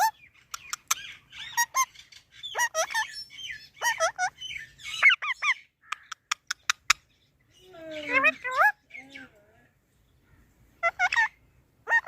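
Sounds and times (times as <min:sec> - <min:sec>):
parrot squawking: 0:00.0 - 0:07.0, 0:08.0 - 0:09.2, 0:10.8 - 0:12.0.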